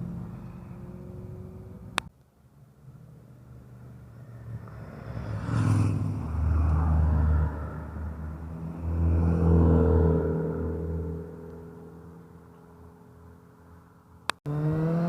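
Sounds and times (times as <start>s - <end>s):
motorcycles riding past: 3.8s - 13.4s, 14.5s - 15.0s.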